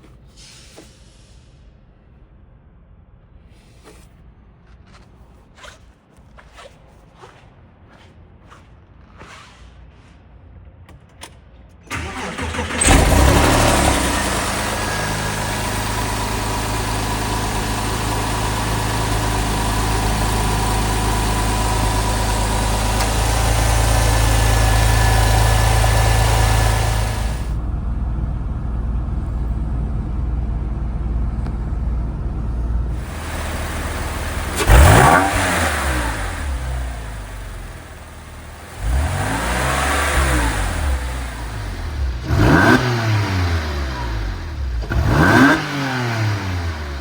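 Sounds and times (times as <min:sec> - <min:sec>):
car engine starting and idling: 0:11.0 - 0:47.0.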